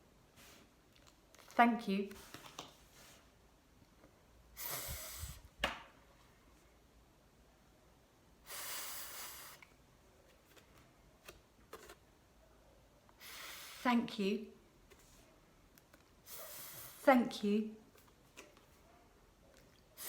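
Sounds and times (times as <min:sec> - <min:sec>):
person making breathy th sound: 0:04.6 - 0:05.5.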